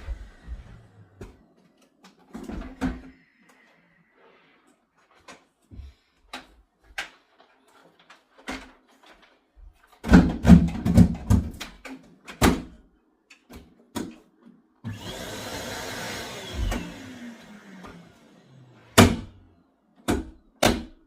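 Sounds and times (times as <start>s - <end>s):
vacuum cleaner motor whirring: 0.0s - 1.4s, 14.8s - 19.6s
plastic clatter and knocks: 6.4s - 12.7s.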